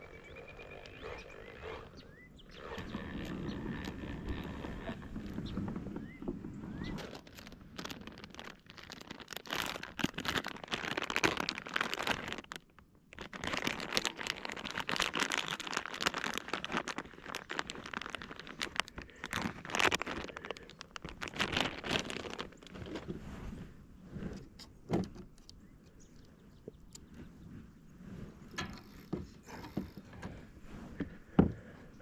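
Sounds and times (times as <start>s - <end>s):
plastic bag crinkling: 6.8s - 23.1s.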